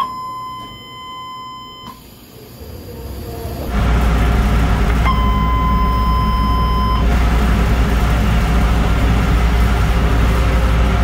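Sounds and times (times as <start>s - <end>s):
train door warning buzzer: 0.0s - 2.0s
low train rumble: 2.4s - 11.0s.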